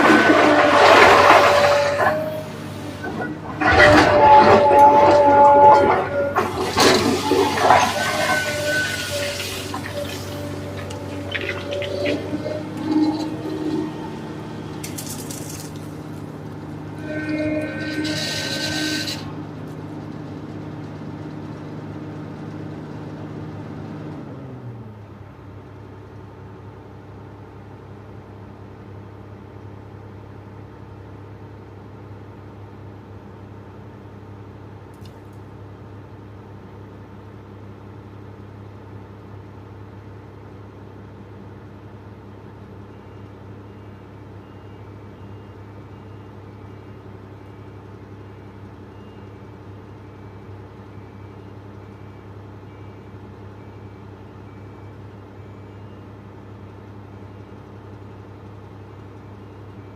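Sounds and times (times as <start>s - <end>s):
excavator diesel engine running: 0.0s - 59.9s
two-tone reversing alarm beep: 42.9s - 56.2s.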